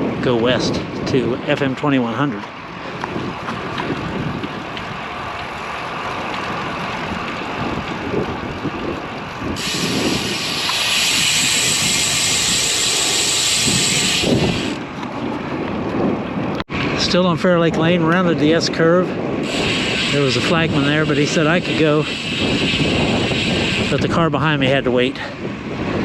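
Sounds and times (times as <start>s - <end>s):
wind buffeting microphone: 0.0s - 26.0s
loud steady hiss: 9.6s - 14.8s, 19.5s - 24.0s.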